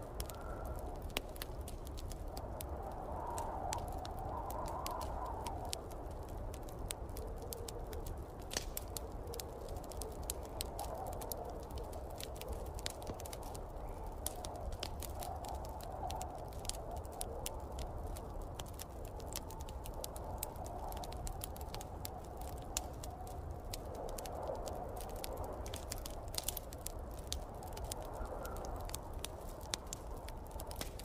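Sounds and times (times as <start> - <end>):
snowstorm wind: 0.0 - 31.0
wood fire crackling and popping: 0.0 - 31.0.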